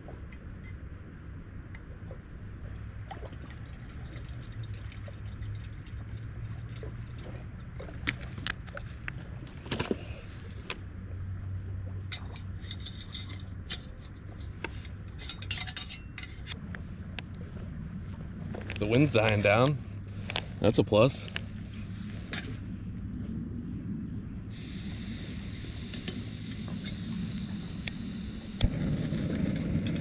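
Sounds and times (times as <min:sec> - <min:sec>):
camp stove humming: 0:12.1 - 0:17.3, 0:24.5 - 0:30.0.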